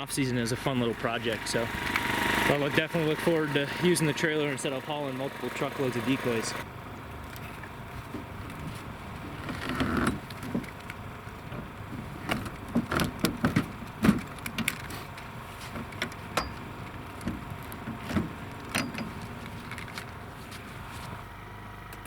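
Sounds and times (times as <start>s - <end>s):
low motor hum: 0.0s - 22.0s.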